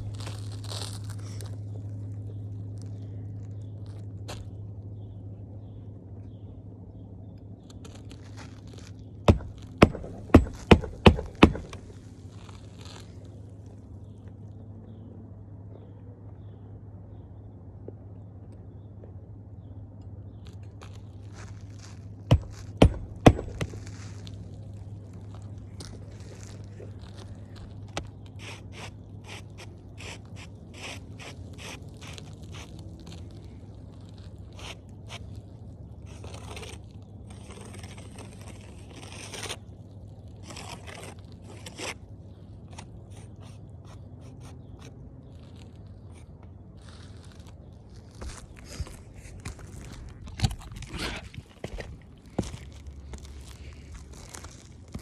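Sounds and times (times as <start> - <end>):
steady low hum: 0.0 - 55.0
sharp knocks: 9.3 - 12.0, 22.3 - 24.0.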